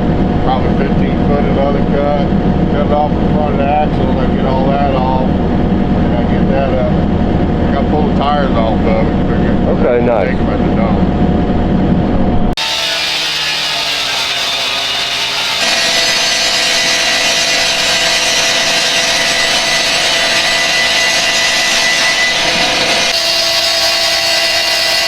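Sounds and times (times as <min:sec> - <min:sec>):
cut-off saw grinding through steel: 0:12.6 - 0:25.0.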